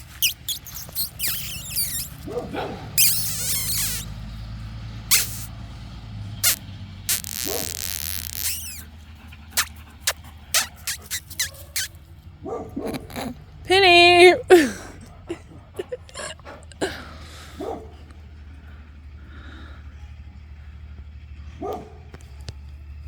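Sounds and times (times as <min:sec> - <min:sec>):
dog whining and yipping: 0:00.0 - 0:04.2, 0:05.1 - 0:05.5, 0:06.4 - 0:08.9, 0:09.6 - 0:12.0, 0:12.8 - 0:14.7.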